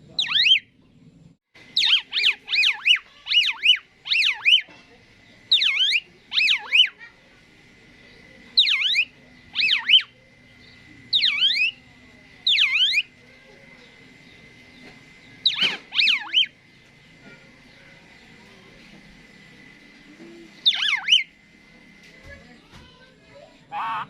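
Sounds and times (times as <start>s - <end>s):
starling whistled calls: 0.1s - 0.8s, 1.6s - 7.2s, 7.9s - 18.4s, 20.6s - 21.4s, 23.7s - 24.0s.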